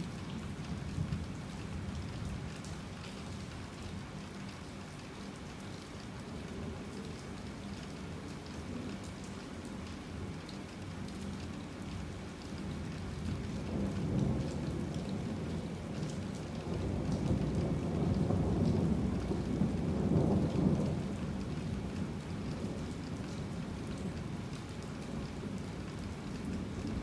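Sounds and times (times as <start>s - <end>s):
heavy rain falling: 12.1s - 27.0s.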